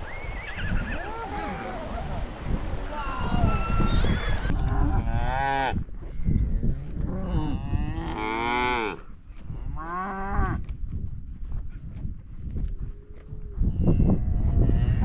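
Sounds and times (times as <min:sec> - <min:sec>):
cattle mooing: 0:07.1 - 0:09.0.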